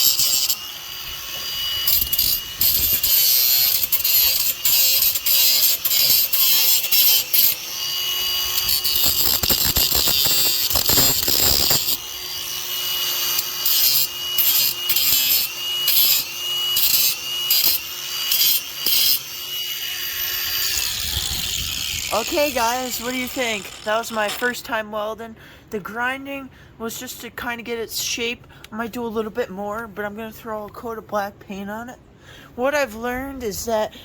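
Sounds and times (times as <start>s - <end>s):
disc grinding metal: 0.0s - 24.4s
grinder motor whine: 0.0s - 24.4s.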